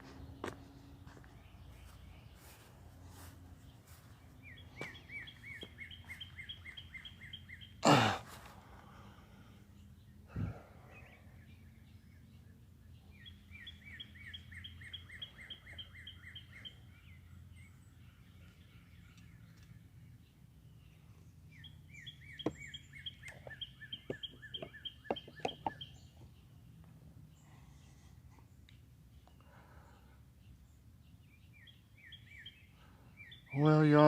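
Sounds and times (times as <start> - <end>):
songbird whistling: 4.4 - 7.7.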